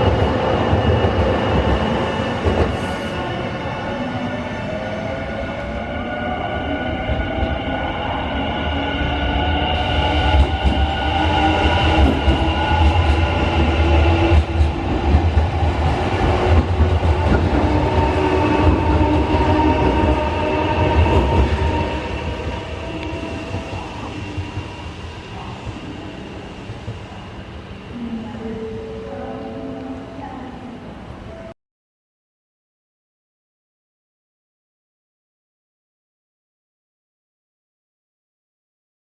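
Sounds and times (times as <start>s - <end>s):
train wheels rumbling on rail: 0.0s - 28.7s.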